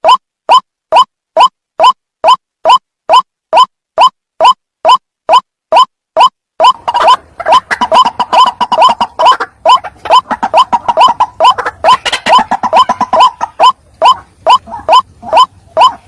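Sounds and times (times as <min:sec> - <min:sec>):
waterhens calling: 0:06.6 - 0:16.0.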